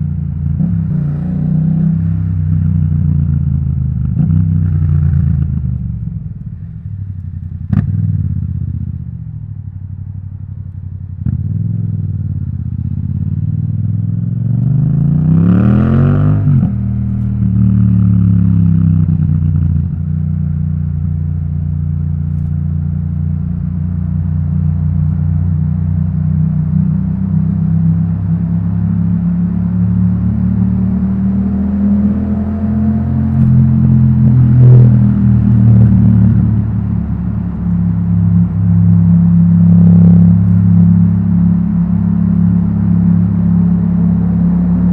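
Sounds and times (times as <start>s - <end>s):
motorcycle engine revving: 11.2s - 21.0s, 23.5s - 44.9s.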